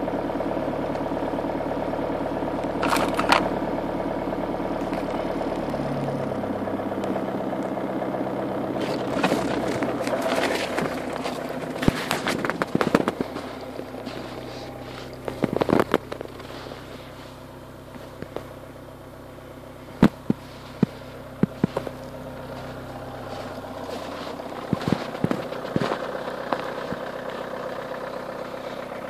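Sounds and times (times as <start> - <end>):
diesel engine idling: 0.0 - 29.0
sharp clicks and cracks: 8.8 - 13.4.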